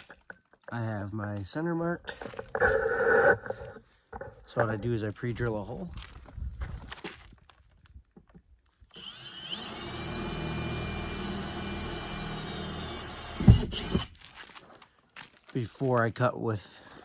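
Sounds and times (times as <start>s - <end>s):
cordless drill drilling: 8.9s - 14.2s
loud knock: 13.4s - 14.0s.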